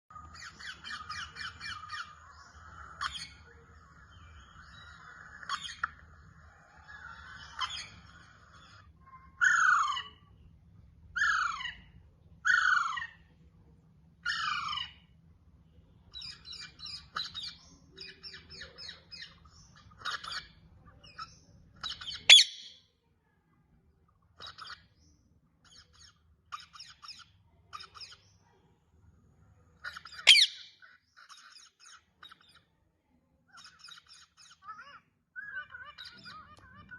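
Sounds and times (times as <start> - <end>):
parrots squawking and chattering: 0.1 - 13.4, 14.2 - 15.2, 16.1 - 22.9, 24.1 - 25.0, 25.6 - 28.4, 29.6 - 32.8, 33.4 - 36.9
sharp parrot screeches: 22.1 - 22.7, 30.1 - 30.9.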